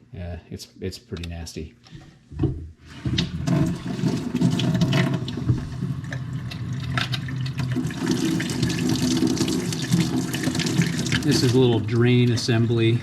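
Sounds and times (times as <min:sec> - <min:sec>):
tap water running into sink: 0:02.9 - 0:11.8.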